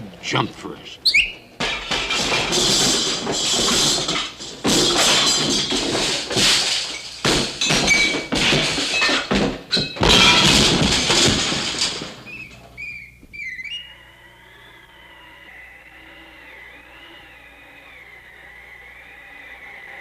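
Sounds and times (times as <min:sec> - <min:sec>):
wavering whistle-like chirps: 0:01.0 - 0:01.5, 0:12.3 - 0:20.0
cartoon crashing and thudding: 0:01.6 - 0:12.4.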